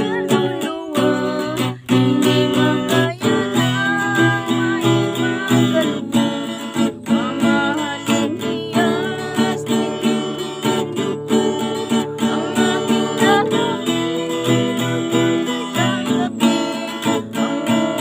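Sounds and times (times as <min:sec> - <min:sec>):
acoustic guitar strumming: 0:00.0 - 0:18.0
person singing: 0:00.0 - 0:18.0.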